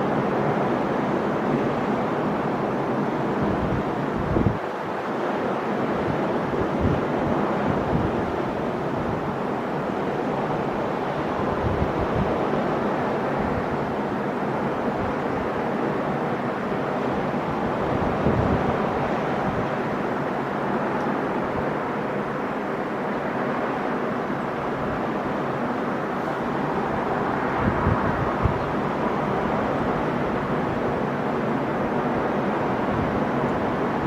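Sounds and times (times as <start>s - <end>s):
sea waves breaking on shore: 0.0s - 34.0s
wind buffeting microphone: 3.4s - 4.6s, 6.0s - 9.4s, 10.5s - 16.0s, 17.2s - 20.3s, 26.2s - 31.0s.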